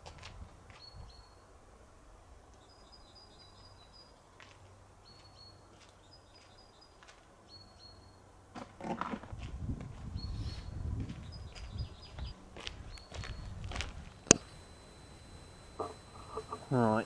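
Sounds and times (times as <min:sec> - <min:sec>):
faint birdsong: 0:00.7 - 0:01.6, 0:02.5 - 0:08.3, 0:10.1 - 0:17.0.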